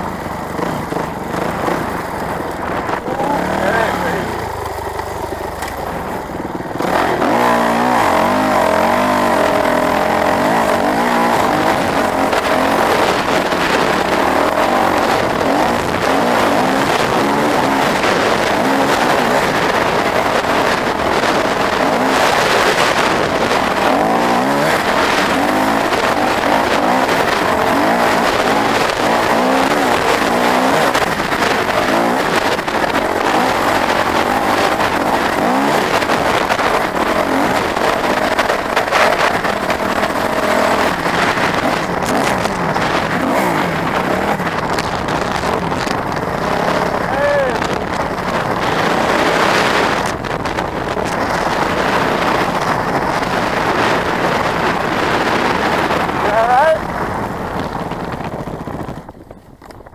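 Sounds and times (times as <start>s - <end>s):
motorcycle engines revving: 0.0s - 59.9s.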